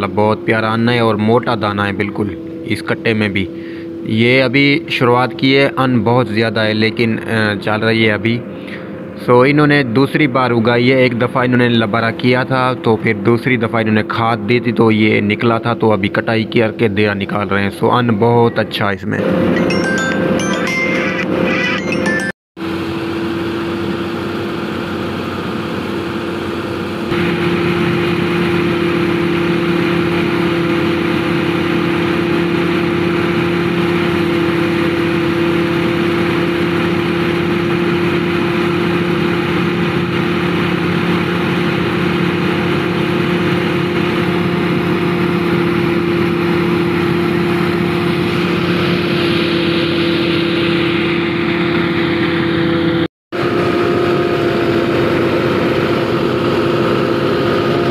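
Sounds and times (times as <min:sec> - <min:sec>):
tractor engine under load: 0:23.6 - 0:57.9.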